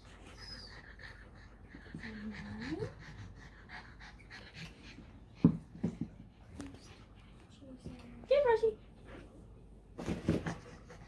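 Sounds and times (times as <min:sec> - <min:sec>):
dog panting: 0:00.2 - 0:06.0.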